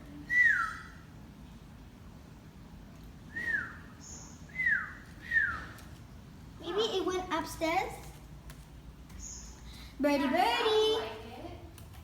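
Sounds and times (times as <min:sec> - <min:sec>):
downward gliding whistles: 0:00.3 - 0:01.0, 0:03.3 - 0:05.8.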